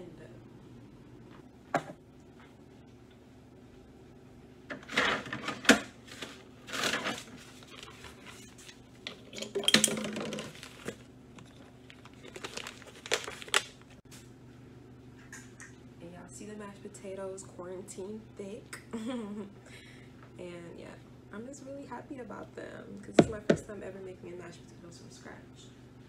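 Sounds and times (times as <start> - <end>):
packaging rustling and crinkling: 4.9 - 8.8, 9.7 - 14.0.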